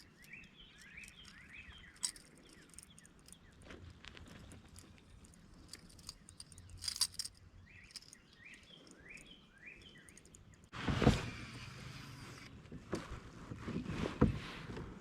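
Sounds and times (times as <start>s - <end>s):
rattle of sharp clicks: 0.0s - 3.6s, 4.2s - 10.7s
birds chirping: 0.0s - 10.7s.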